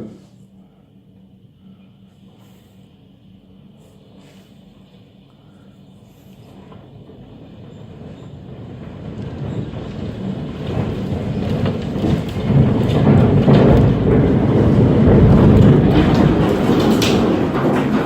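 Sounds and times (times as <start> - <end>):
tornado roar: 6.4 - 18.0.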